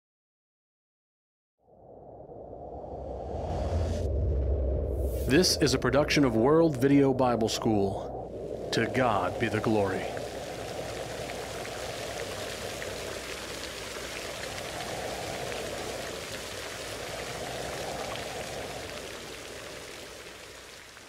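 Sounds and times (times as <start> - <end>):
rain falling: 5.3 - 21.0
drops ticking: 8.3 - 21.0.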